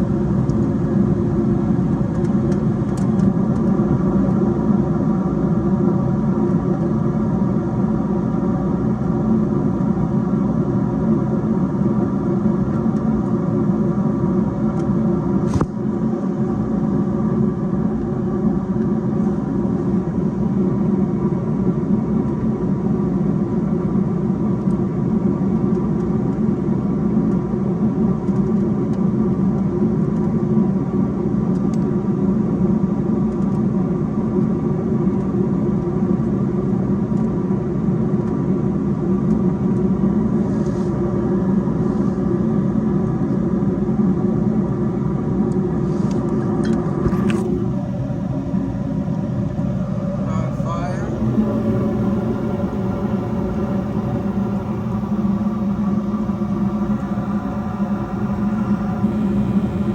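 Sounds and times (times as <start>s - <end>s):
steady hum: 45.4s - 59.9s
gas furnace rumbling: 45.6s - 59.9s.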